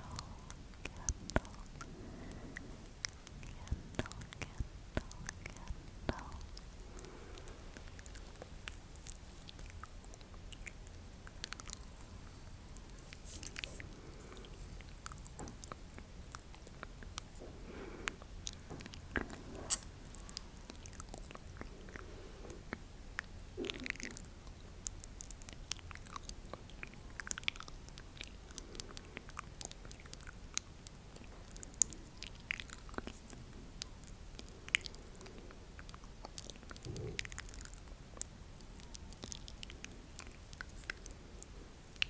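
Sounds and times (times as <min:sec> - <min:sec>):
wet mouth clicks and smacks: 0:03.0 - 0:11.9, 0:22.6 - 0:41.2.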